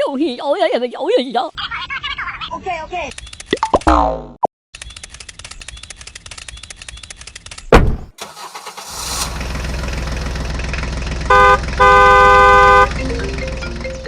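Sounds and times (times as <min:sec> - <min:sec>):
vehicle engine starting and running: 0:08.2 - 0:14.0
horn honks: 0:11.2 - 0:13.0.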